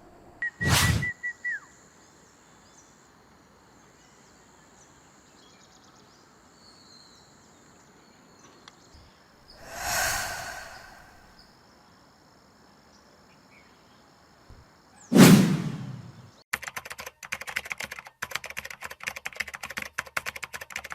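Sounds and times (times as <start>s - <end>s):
loud rushing noise: 9.6s - 11.2s, 15.2s - 16.1s
faint chirps: 9.6s - 11.4s.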